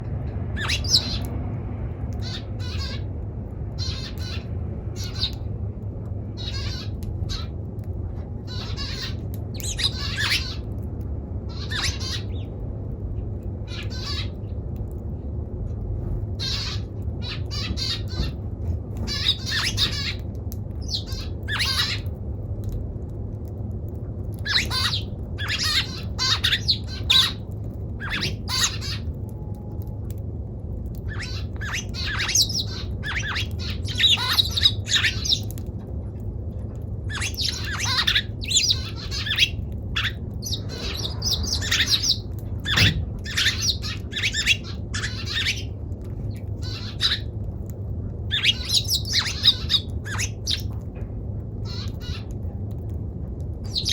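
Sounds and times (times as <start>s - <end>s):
sparrow chirping: 0.6s - 1.2s, 8.5s - 10.6s, 19.0s - 20.2s, 20.8s - 22.0s, 24.5s - 27.4s, 28.0s - 29.0s, 31.1s - 35.6s, 37.1s - 45.7s, 48.3s - 50.7s, 53.7s - 53.9s.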